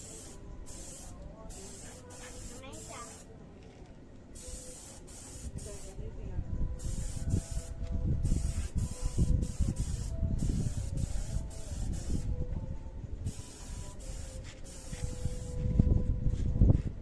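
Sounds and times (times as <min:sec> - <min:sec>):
spray hissing bursts: 0:00.0 - 0:03.3, 0:04.4 - 0:06.0, 0:13.3 - 0:15.6.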